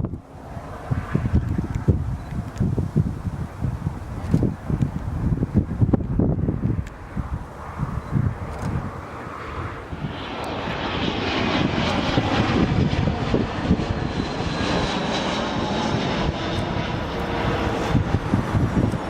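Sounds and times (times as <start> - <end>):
jet engines roaring with whine: 0.0 - 19.0.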